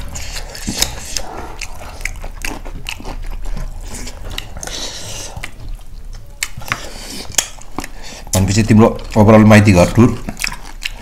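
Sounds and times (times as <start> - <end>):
chewing and crunching food: 0.0 - 11.0.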